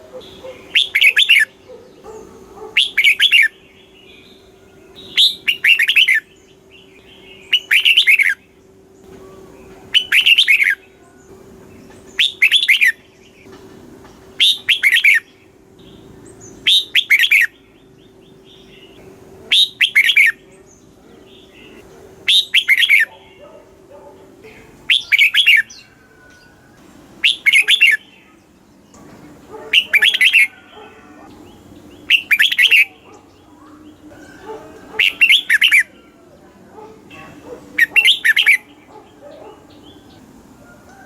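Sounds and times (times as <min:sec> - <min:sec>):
bulbul singing warbling phrase: 0:31.5 - 0:34.2.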